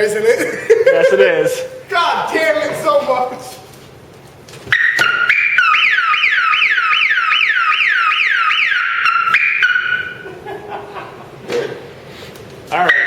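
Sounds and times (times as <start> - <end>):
car alarm siren: 4.7 - 10.3.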